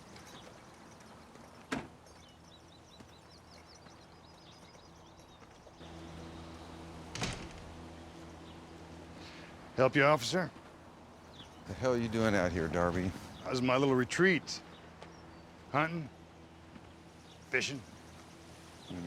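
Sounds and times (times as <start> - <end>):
low steady hum: 0.0 - 19.0
door thudding shut: 7.1 - 7.7.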